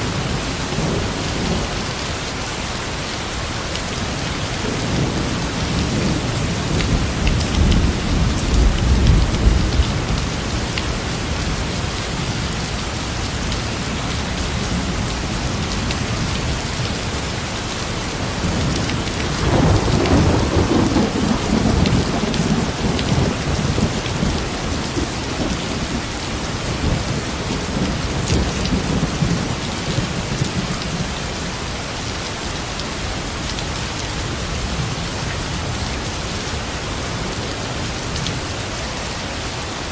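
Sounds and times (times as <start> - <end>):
steady rain falling: 0.0 - 39.9
thunder rumbling: 18.0 - 31.4.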